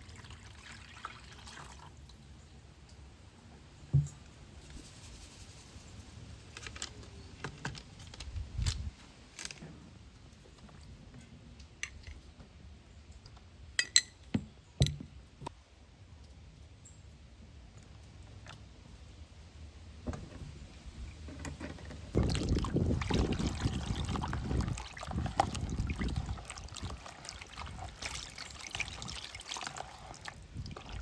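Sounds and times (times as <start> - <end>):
objects knocking and tapping: 3.9 - 4.3, 13.8 - 15.5.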